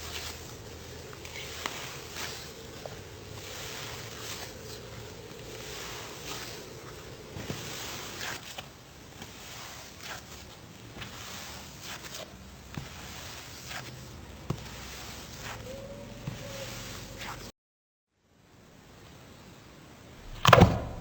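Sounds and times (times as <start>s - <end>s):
steady hiss: 0.0s - 12.6s.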